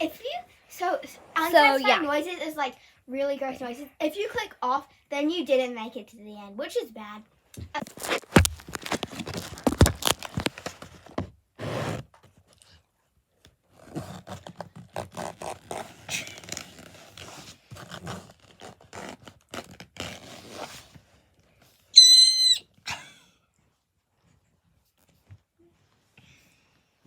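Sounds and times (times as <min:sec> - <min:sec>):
clicking and scraping: 0:07.8 - 0:11.2
loud high-pitched squeal: 0:22.0 - 0:22.6.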